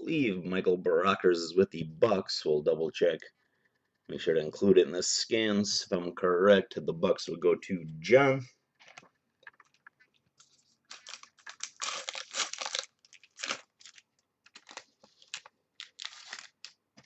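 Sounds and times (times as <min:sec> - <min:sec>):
plastic packaging crinkling: 0:09.5 - 0:17.0.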